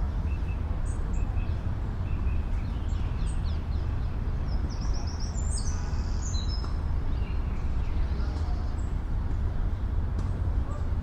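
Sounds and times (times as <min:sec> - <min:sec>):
distant city traffic rumble: 0:00.0 - 0:11.0
songbirds chirping: 0:00.0 - 0:11.0.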